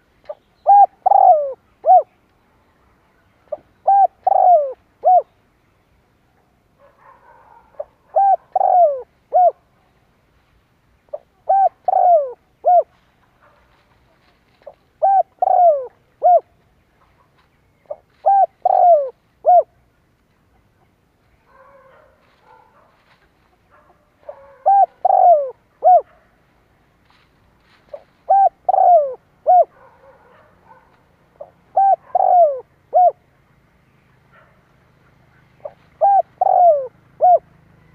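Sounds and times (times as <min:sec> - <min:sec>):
dove cooing: 0:00.0 - 0:02.1, 0:03.5 - 0:05.3, 0:07.3 - 0:09.7, 0:11.1 - 0:13.0, 0:14.6 - 0:16.6, 0:17.9 - 0:19.8, 0:23.5 - 0:26.2, 0:27.9 - 0:33.2, 0:34.4 - 0:37.9.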